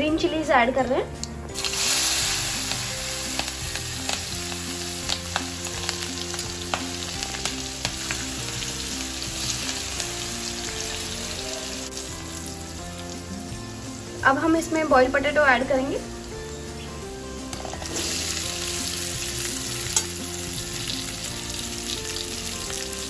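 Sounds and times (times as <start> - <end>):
soft background music: 0.0 - 23.0
chillies sizzling in hot oil: 1.5 - 23.0
crackles and pops of frying: 1.6 - 13.6, 17.3 - 23.0.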